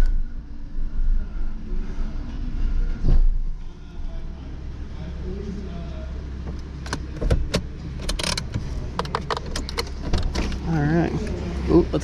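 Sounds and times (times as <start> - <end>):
vehicle engine idling: 0.0 - 12.0
thump: 3.0 - 3.5.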